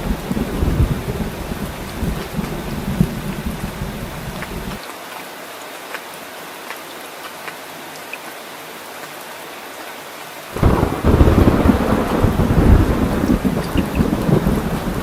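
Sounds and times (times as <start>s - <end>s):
thunder rumble: 0.0s - 4.8s, 10.6s - 15.0s
steady rain: 0.0s - 15.0s
water drips: 12.3s - 15.0s.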